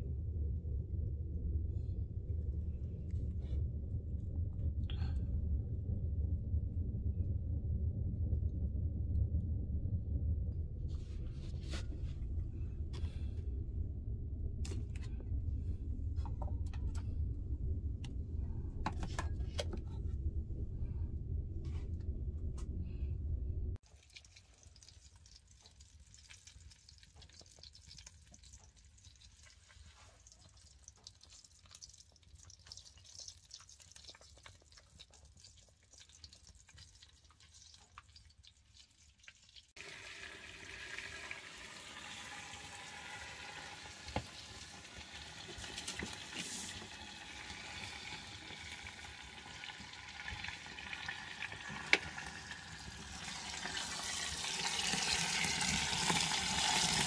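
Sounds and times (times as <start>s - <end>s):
fat sizzling and crackling: 23.8s - 57.0s.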